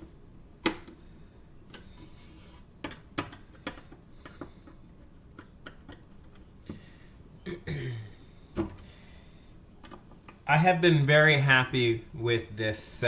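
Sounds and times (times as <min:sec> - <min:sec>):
light clicks and taps of parts: 0:00.0 - 0:07.0, 0:09.7 - 0:10.4.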